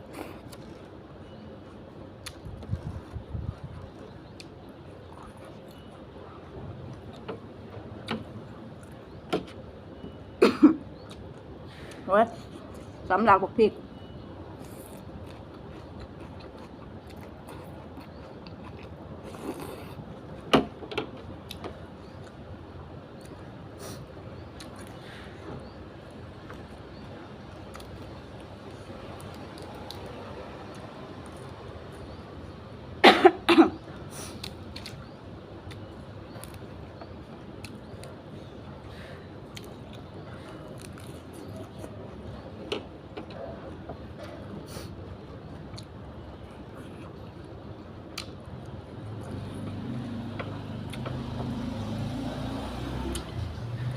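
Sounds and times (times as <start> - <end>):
soft chewing: 0.0 - 10.2, 14.0 - 20.5, 23.2 - 32.6, 34.0 - 51.6
chewing and mouth noises: 1.6 - 7.3, 14.6 - 20.5, 39.4 - 42.4.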